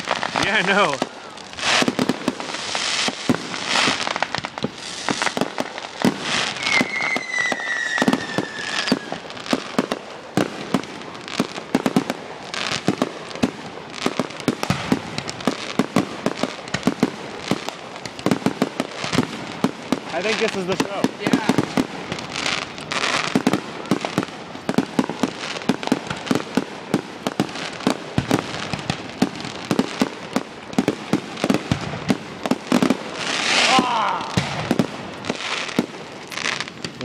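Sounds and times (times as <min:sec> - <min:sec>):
firework bursts and crackles: 0:00.0 - 0:37.0
falling firework whistle: 0:06.0 - 0:09.4.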